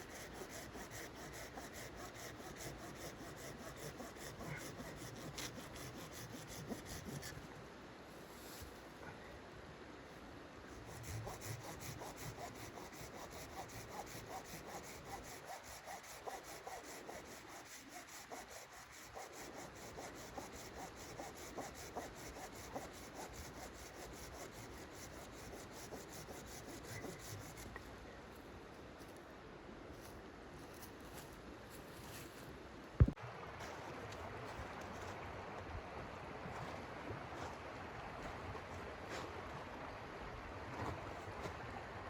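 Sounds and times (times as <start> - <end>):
hand saw cutting wood: 0.0 - 7.4, 10.8 - 27.7.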